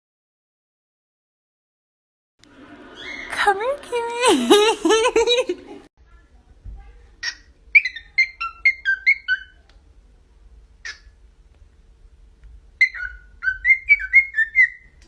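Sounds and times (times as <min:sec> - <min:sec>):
pet bird whistling: 0:07.2 - 0:09.6, 0:12.8 - 0:15.0.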